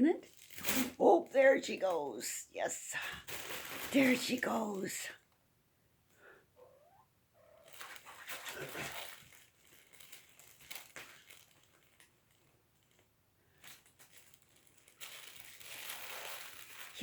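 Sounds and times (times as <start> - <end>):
kitten rustling and scraping: 3.1 - 4.6, 7.6 - 17.0.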